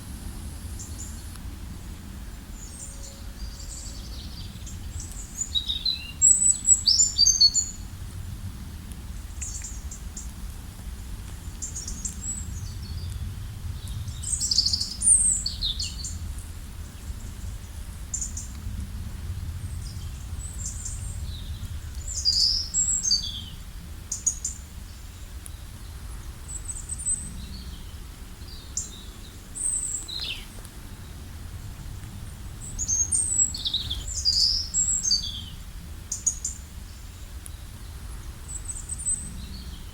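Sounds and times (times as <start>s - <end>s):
low background rumble: 0.0s - 39.9s
songbirds chirping and singing: 2.4s - 7.8s, 19.8s - 31.8s, 32.5s - 39.9s.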